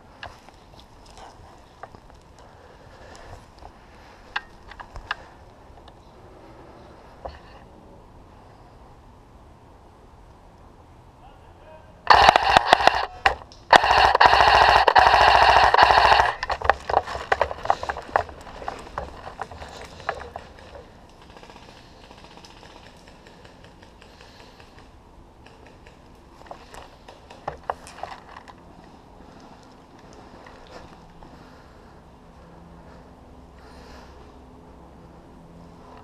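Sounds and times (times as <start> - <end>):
airsoft rifle full auto bursts: 12.1 - 18.2.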